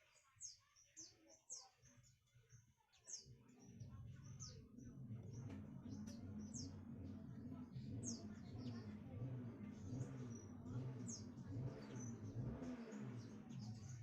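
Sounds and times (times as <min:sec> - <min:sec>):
small birds chirping: 0:00.0 - 0:14.0
low steady hum: 0:03.7 - 0:14.0.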